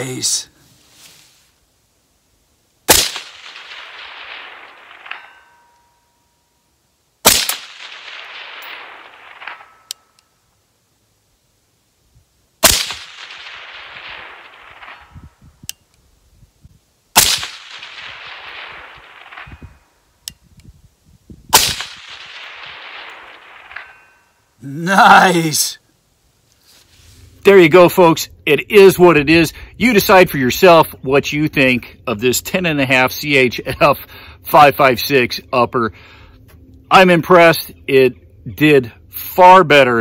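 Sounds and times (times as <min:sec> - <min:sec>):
suppressed rifle shots: 0:02.9 - 0:05.8, 0:07.2 - 0:10.2, 0:12.6 - 0:15.4, 0:17.1 - 0:20.0, 0:21.5 - 0:24.3
rolling echo: 0:02.9 - 0:06.7, 0:07.3 - 0:10.6, 0:12.6 - 0:15.6, 0:17.2 - 0:20.2, 0:21.5 - 0:24.6
steel target ringing: 0:03.2 - 0:06.8, 0:07.6 - 0:10.4.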